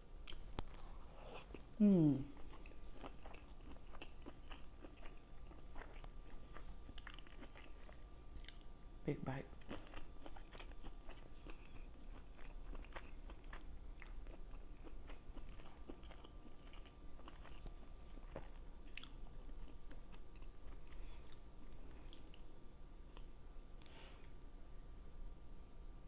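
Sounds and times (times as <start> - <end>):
person chewing food: 0.2 - 8.7, 9.5 - 24.0.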